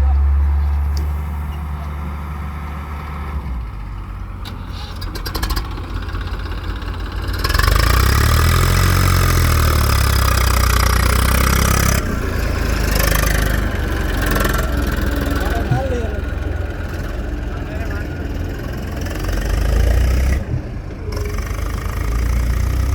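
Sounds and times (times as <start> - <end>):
diesel engine idling and revving: 0.0 - 22.9.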